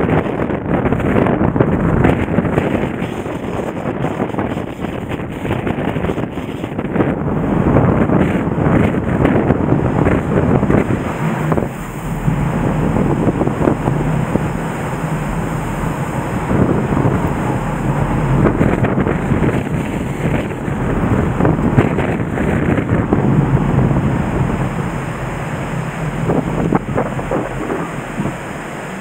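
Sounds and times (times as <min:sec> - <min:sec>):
wind buffeting microphone: 0:00.0 - 0:29.0
river rushing: 0:07.3 - 0:29.0.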